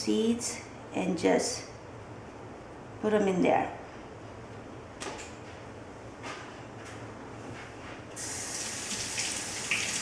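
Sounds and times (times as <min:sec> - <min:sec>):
tap water running: 0:08.2 - 0:10.0.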